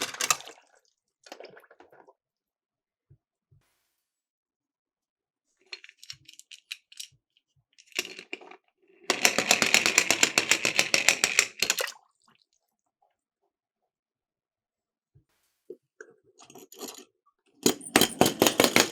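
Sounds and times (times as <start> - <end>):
toy cars rattling down a slope: 9.1 - 11.8, 17.6 - 18.9.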